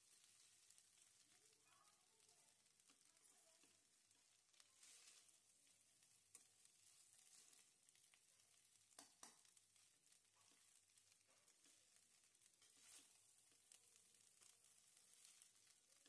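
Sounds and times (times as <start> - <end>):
rice sizzling in oil: 0.0 - 16.0
spatula clicking against pan: 8.9 - 9.6.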